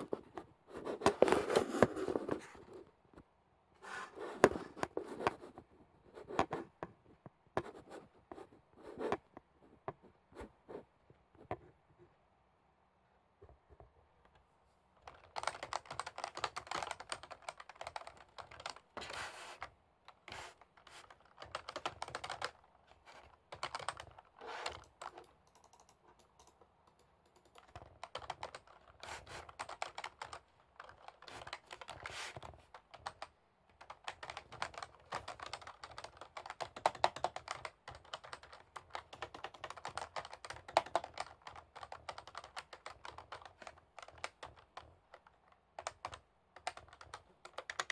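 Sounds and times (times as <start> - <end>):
typing on computer keyboard: 15.0 - 47.9.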